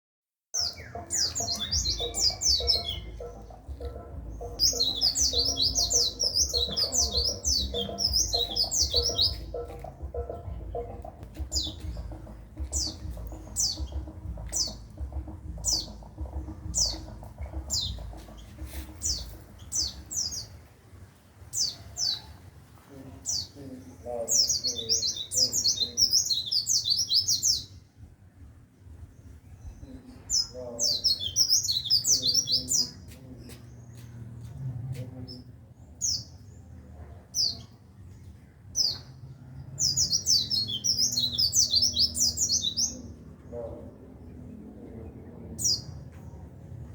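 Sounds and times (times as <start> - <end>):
bird twittering trills: 0.6 - 20.6, 29.6 - 34.1, 39.8 - 43.8
low hum: 0.8 - 20.6.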